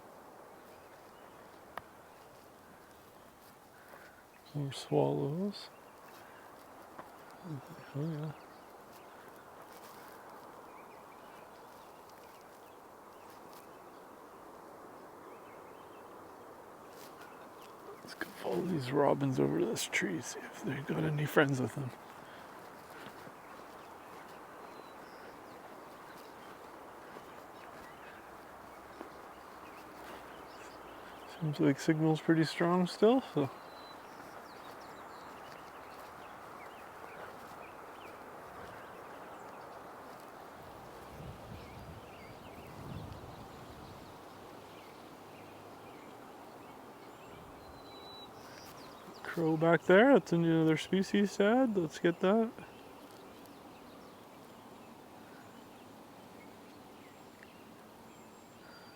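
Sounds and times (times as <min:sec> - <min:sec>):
steady outdoor background noise: 0:00.0 - 0:58.9
faint bird chirps: 0:02.2 - 0:14.1.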